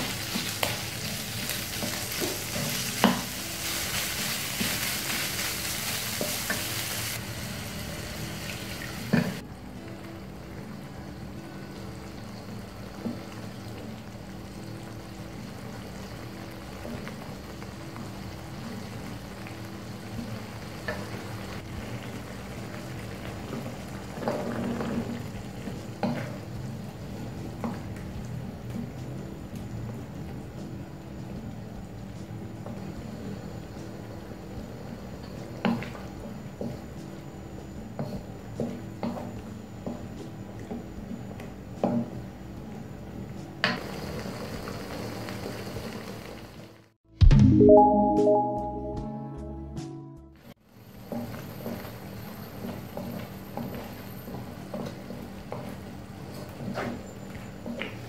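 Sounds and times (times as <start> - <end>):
food sizzling in wok: 0.0 - 31.7, 43.6 - 46.9, 50.6 - 58.0.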